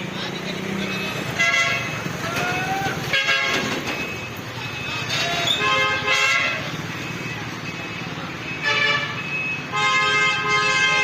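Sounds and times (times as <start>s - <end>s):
road rumble: 0.0s - 11.0s
vehicle horns honking: 0.9s - 3.9s, 4.7s - 6.8s, 8.5s - 11.0s.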